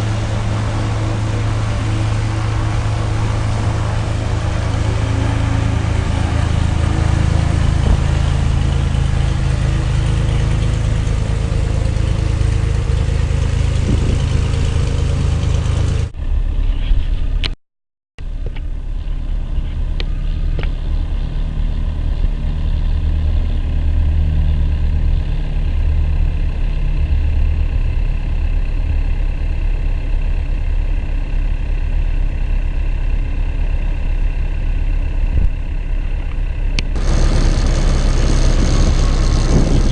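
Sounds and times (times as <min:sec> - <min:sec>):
faint high whine: 0:00.0 - 0:12.8, 0:37.0 - 0:39.9
engine humming: 0:00.0 - 0:17.6, 0:18.2 - 0:39.9.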